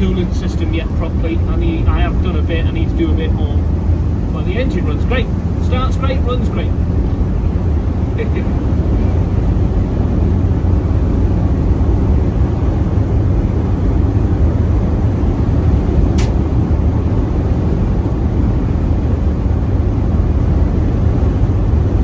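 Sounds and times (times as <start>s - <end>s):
engine and road noise: 0.0s - 22.0s
sharp click: 16.2s - 16.4s.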